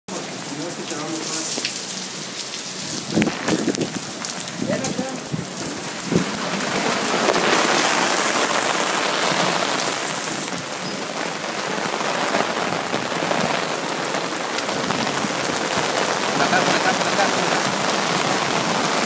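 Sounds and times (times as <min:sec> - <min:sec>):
heavy rain on pavement and cars: 0:00.1 - 0:19.0.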